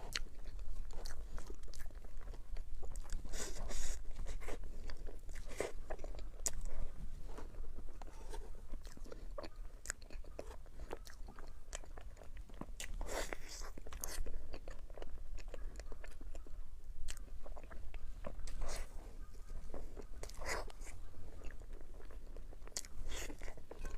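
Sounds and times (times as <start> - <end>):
chewing crunchy chocolate: 0.0 - 23.9.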